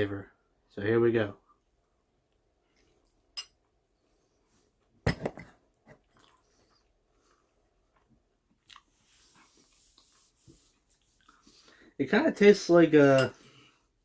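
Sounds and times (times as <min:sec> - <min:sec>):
person chewing food: 0:05.8 - 0:10.1
soft breathing: 0:09.0 - 0:12.0, 0:13.3 - 0:14.0.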